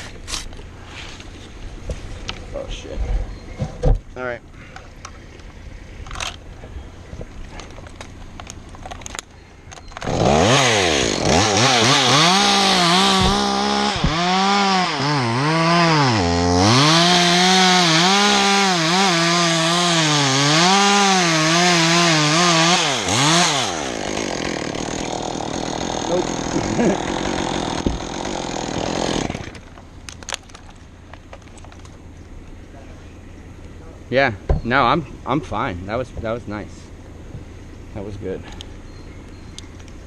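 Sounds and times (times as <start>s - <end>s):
chainsaw cutting wood: 10.0s - 29.8s.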